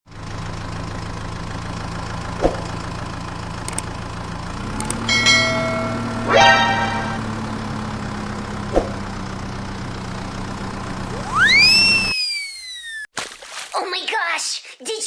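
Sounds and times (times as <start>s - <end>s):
engine idling hum: 0.1s - 12.1s
quick rising tone: 2.4s - 2.8s, 8.7s - 9.1s, 11.0s - 13.1s
ringing chime-like tone: 5.0s - 7.3s.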